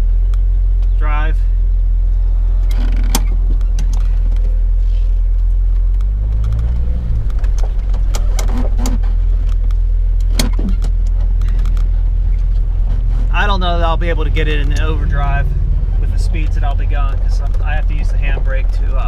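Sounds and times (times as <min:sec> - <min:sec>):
car engine idling: 0:00.0 - 0:19.0
sharp clicks and light rattles: 0:02.6 - 0:04.6, 0:05.2 - 0:12.7, 0:14.4 - 0:15.0, 0:16.0 - 0:19.0.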